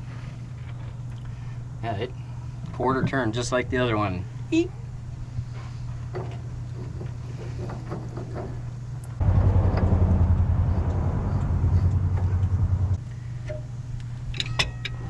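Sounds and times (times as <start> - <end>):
steam rushing burst with pulsing: 9.2 - 13.0
steam locomotive low hum: 9.2 - 13.4.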